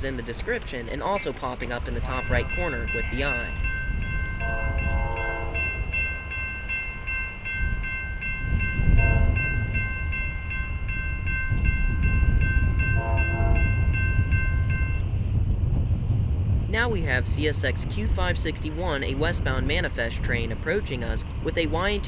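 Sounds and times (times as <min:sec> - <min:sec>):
crossing bell ringing: 0:00.0 - 0:15.2
train rumble: 0:00.0 - 0:22.0
locomotive horn: 0:04.4 - 0:06.0, 0:08.9 - 0:09.8, 0:13.0 - 0:14.0.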